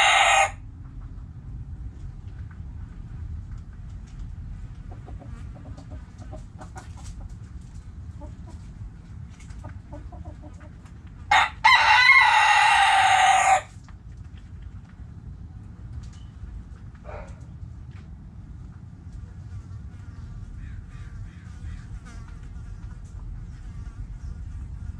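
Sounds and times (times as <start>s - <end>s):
rooster crowing: 0.0s - 0.6s, 11.3s - 13.7s
hens clucking softly: 4.8s - 11.2s.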